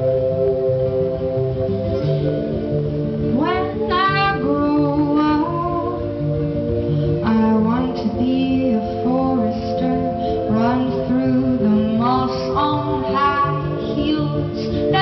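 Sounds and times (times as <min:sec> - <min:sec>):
held instrumental notes: 0:00.0 - 0:15.0
women singing: 0:03.3 - 0:06.2, 0:07.2 - 0:15.0.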